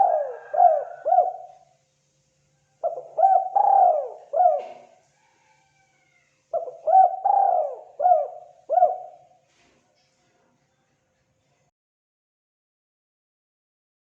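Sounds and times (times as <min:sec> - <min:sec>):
dove cooing: 0:00.0 - 0:01.6, 0:02.8 - 0:05.6, 0:06.5 - 0:09.4.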